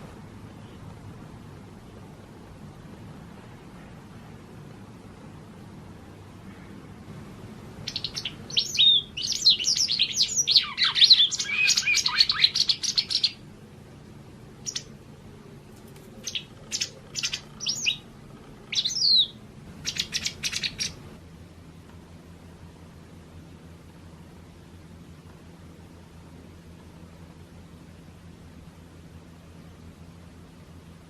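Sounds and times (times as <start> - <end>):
bird chirping and twittering: 7.8 - 13.4, 14.6 - 15.0, 16.2 - 21.1.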